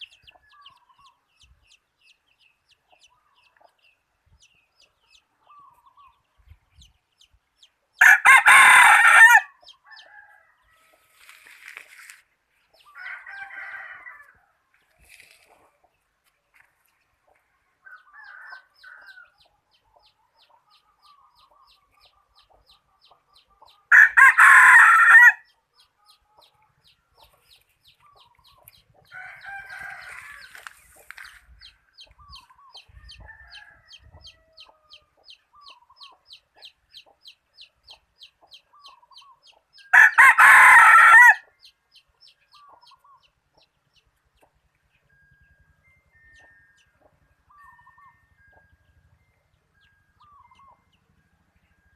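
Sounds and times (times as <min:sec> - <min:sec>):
rooster crowing: 0:08.0 - 0:11.0, 0:12.9 - 0:14.6, 0:17.8 - 0:19.4, 0:23.9 - 0:25.5, 0:29.1 - 0:30.7, 0:33.0 - 0:34.7, 0:39.9 - 0:41.5.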